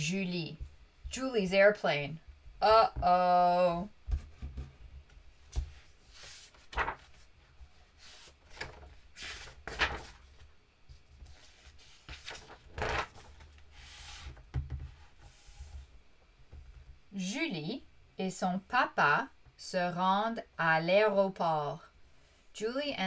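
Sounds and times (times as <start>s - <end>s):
book pages turning: 5.4s - 14.4s.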